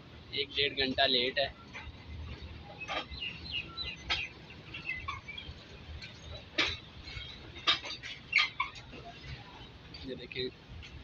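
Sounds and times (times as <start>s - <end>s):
small birds chirping: 2.3s - 7.3s.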